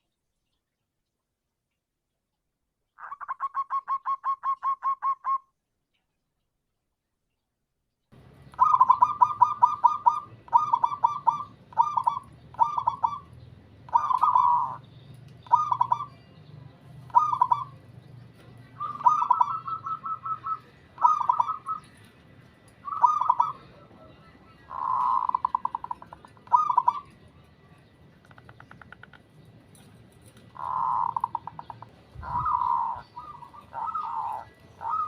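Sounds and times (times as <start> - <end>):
dove cooing: 3.0 - 5.4, 8.5 - 14.8, 15.4 - 16.2, 17.1 - 17.8, 18.4 - 22.0, 22.8 - 27.2, 30.4 - 35.0.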